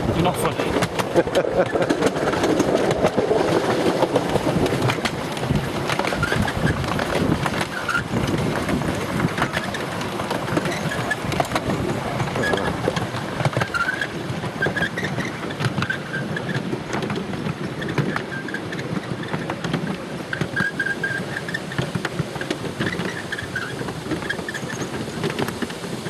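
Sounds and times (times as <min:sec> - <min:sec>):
train wheels rumbling on track: 0:00.0 - 0:26.0
rail joint clicks: 0:00.2 - 0:26.0
short high squeaks: 0:22.8 - 0:25.0.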